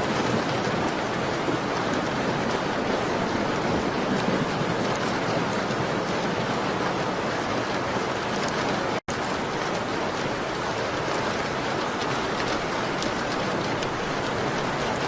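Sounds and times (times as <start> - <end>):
rain pattering on a window: 0.0 - 15.0.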